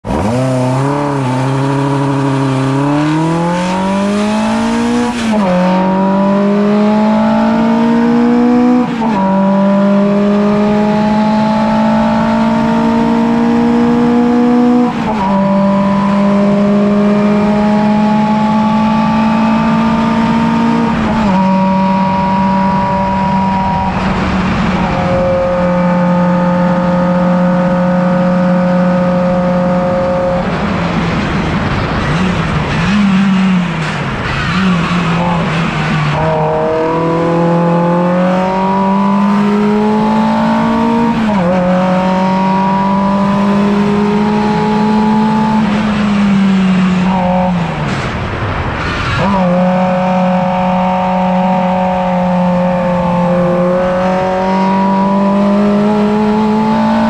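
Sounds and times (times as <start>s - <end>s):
car engine accelerating through gears: 0.0s - 57.0s.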